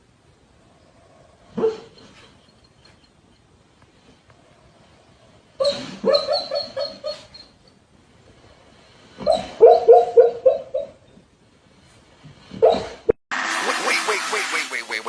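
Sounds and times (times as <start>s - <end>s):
dog yipping: 1.6s - 2.2s, 5.6s - 7.6s, 9.2s - 11.0s, 12.6s - 13.0s.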